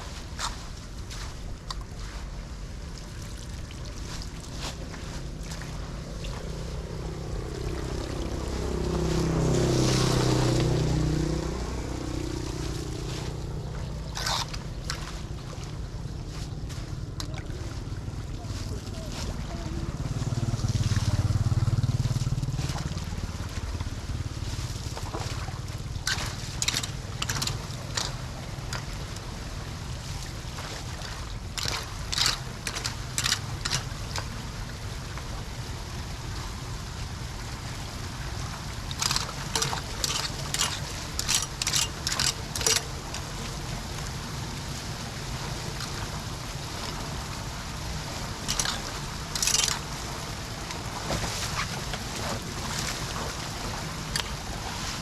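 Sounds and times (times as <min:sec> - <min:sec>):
sharp splashing or scraping: 0:00.0 - 0:17.8, 0:18.4 - 0:34.8, 0:38.2 - 0:55.0
floodwater rushing into drain: 0:00.0 - 0:55.0.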